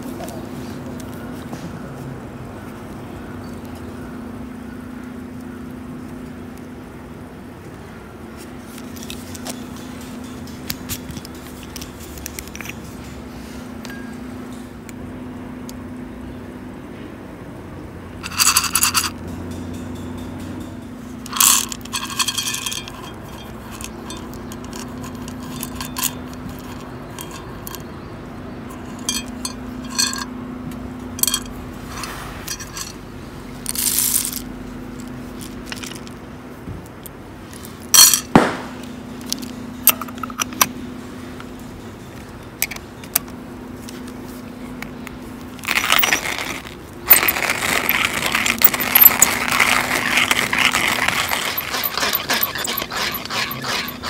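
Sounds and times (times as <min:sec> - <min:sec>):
metallic clinks and scrapes: 0:08.7 - 0:13.2, 0:18.2 - 0:30.4, 0:31.0 - 0:36.2, 0:45.5 - 0:54.0
continuous rattling: 0:18.2 - 0:30.4, 0:31.1 - 0:36.2, 0:45.4 - 0:54.0.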